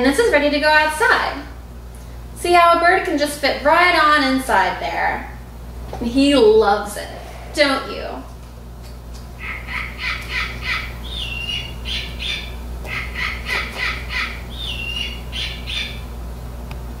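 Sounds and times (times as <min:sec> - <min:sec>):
bird squawking: 0:09.4 - 0:16.1.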